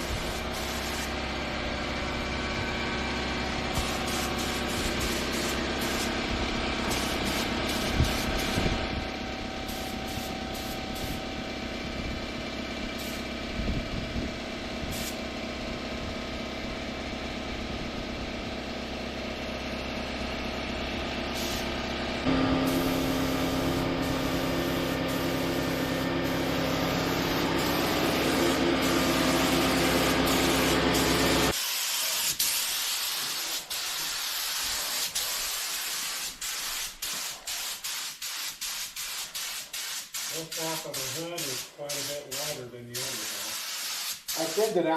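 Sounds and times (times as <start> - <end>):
paint spray gun hissing: 0.0 - 1.2, 3.7 - 8.8, 9.6 - 11.2, 13.0 - 13.2, 14.9 - 15.2, 21.3 - 44.8
motor humming: 21.8 - 31.5.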